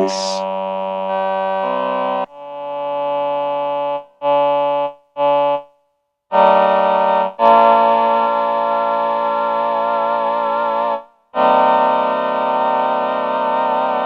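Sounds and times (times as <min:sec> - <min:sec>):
synth choir keyboard chords: 0:00.0 - 0:00.6.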